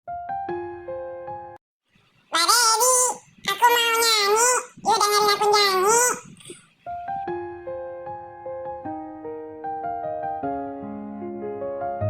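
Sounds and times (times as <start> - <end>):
high-pitched cartoon voice: 2.3 - 6.6.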